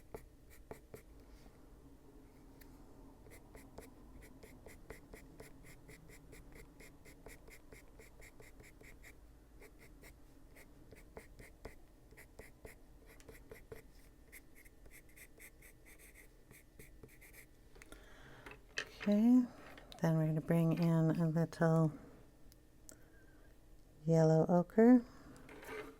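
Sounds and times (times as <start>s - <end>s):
pencil scratching on paper: 0.0s - 1.1s, 3.3s - 17.5s.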